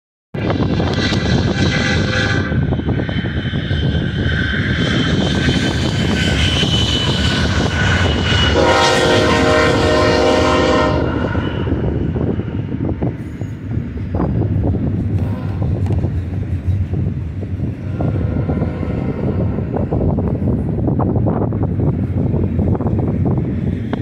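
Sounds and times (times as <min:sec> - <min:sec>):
freight train rumbling past: 0:00.4 - 0:24.0
multi-note train horn: 0:00.9 - 0:02.8, 0:06.2 - 0:12.2.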